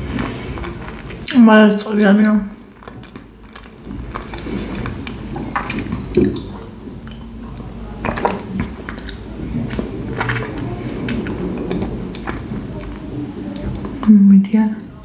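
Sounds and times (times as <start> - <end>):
wet chewing and smacking: 0.0 - 15.0
person sipping tea: 2.6 - 7.2.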